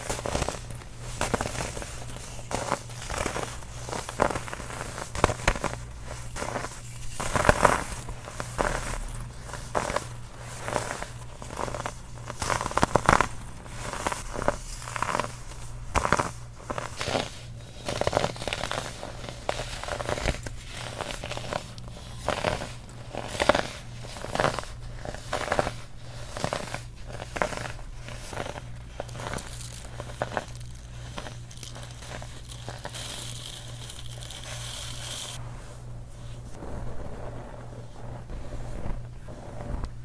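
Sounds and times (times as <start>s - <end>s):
baking soda crunching: 0.0s - 40.0s.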